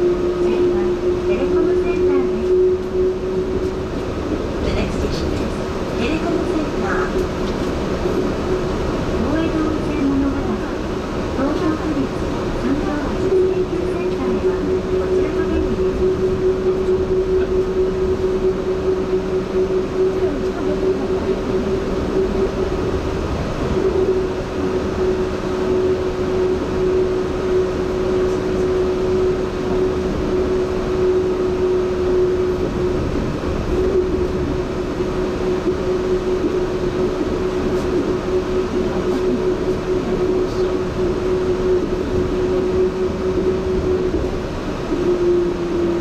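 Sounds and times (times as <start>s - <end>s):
train running on guideway: 0.0s - 46.0s.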